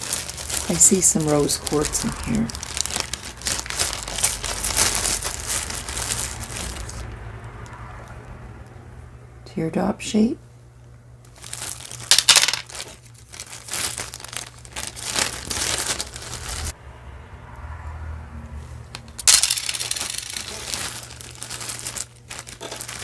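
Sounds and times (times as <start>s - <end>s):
packaging crinkling and rustling: 0.0s - 7.1s, 11.2s - 16.8s, 19.2s - 23.0s
metal and beads clinking: 11.9s - 13.0s, 19.0s - 23.0s.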